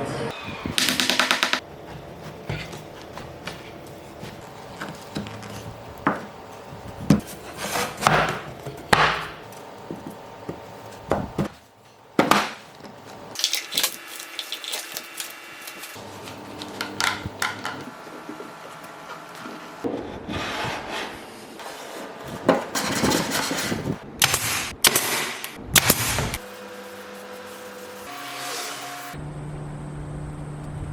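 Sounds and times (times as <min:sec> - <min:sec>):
scraping on wood: 0:01.6 - 0:06.4, 0:07.0 - 0:08.8.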